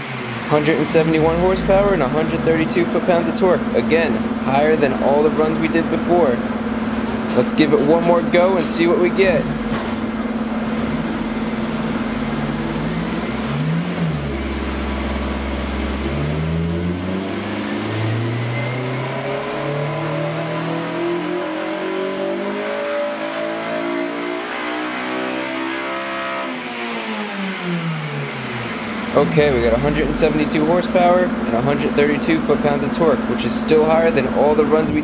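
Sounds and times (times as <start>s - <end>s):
car engine revving: 0.0s - 7.2s, 7.8s - 35.0s.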